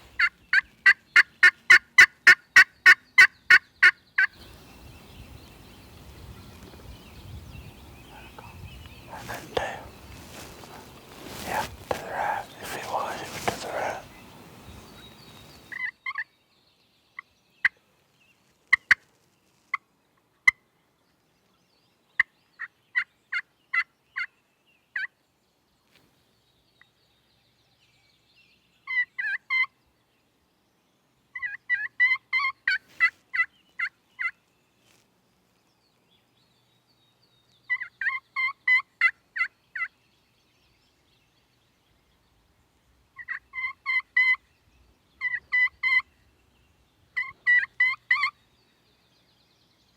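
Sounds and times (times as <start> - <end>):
wild turkey calling: 7.8 - 16.2, 43.2 - 44.4, 45.2 - 46.1, 47.2 - 48.4.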